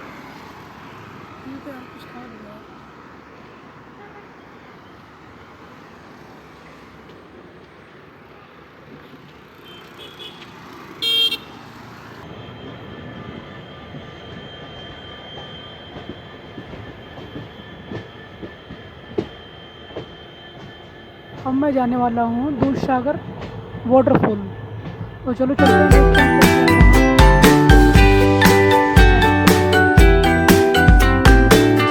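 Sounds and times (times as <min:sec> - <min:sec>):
loud horn blast: 0:11.0 - 0:11.6
high whine: 0:12.2 - 0:31.9
vehicle rumbling: 0:21.3 - 0:31.9.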